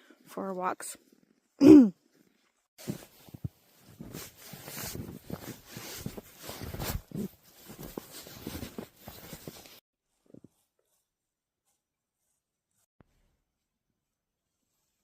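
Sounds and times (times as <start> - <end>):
footsteps crunching in snow: 2.8 - 12.9.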